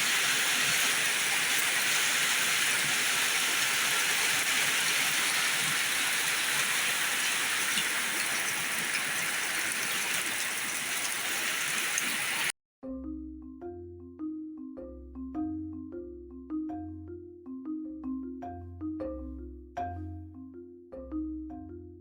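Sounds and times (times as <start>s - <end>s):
heavy rain pouring: 0.0s - 12.5s
mallet percussion notes: 12.8s - 22.0s.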